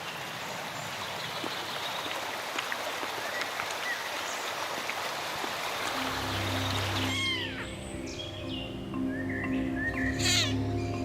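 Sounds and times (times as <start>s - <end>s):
stream running: 0.0s - 11.0s
low steady music: 5.8s - 11.0s.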